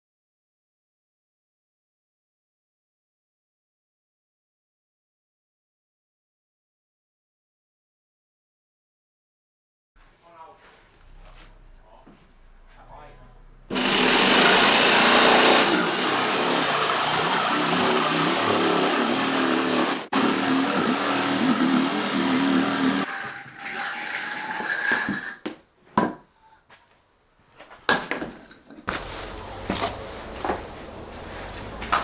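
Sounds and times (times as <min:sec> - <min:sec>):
electric power tool running: 0:13.5 - 0:23.2, 0:28.9 - 0:32.0.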